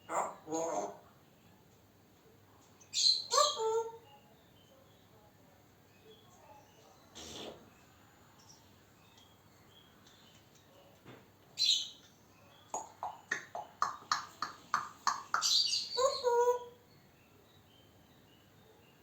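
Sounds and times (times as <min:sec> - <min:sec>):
parrot squawking and chirping: 0:03.0 - 0:04.0, 0:12.7 - 0:16.7.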